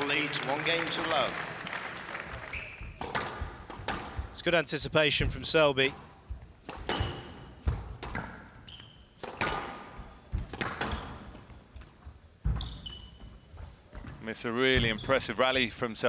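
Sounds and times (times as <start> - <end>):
shoes squeaking on wooden floor: 0.0 - 15.8
squash ball hit and smacking walls: 2.5 - 4.4, 5.2 - 13.3.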